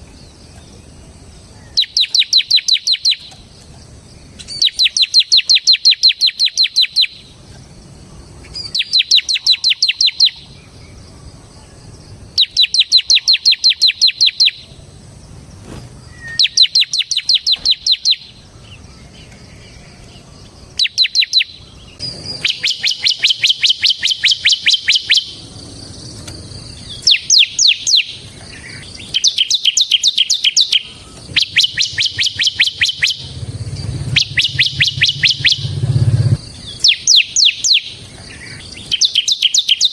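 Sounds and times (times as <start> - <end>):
bird singing rapid high chips: 1.6 - 3.4, 4.2 - 7.4, 8.4 - 11.0, 12.2 - 14.8, 15.7 - 19.7, 20.7 - 39.9.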